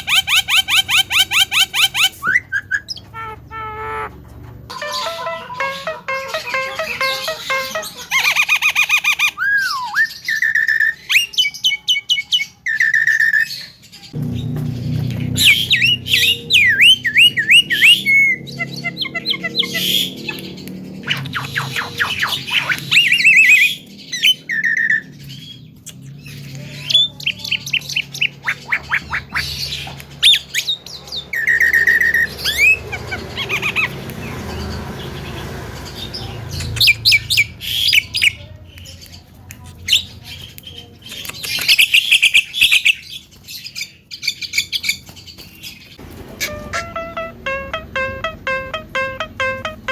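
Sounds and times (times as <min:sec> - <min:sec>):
myna chirping and whistling: 0:00.0 - 0:04.2, 0:04.8 - 0:13.5, 0:15.2 - 0:25.1.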